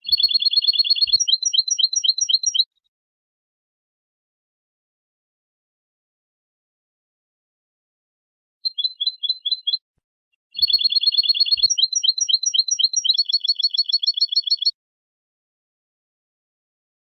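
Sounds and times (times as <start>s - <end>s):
finch singing trilled phrases: 0.0s - 2.7s, 8.6s - 9.8s, 10.5s - 14.8s.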